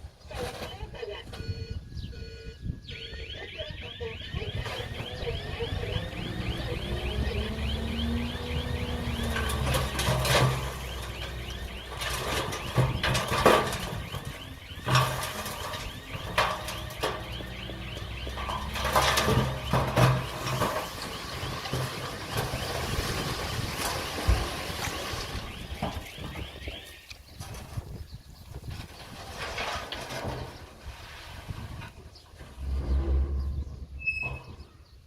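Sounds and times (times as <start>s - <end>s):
diesel engine running: 4.4s - 25.1s
metal clanks from tracks: 9.3s - 21.0s.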